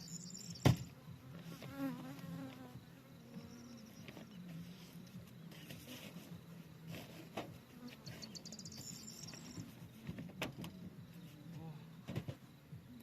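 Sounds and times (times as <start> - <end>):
bees buzzing: 0.3 - 10.1.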